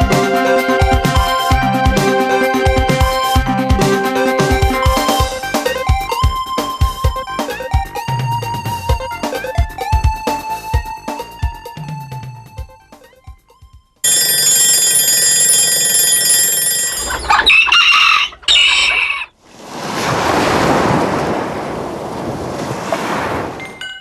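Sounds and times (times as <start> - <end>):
rooster crowing: 17.1 - 19.4.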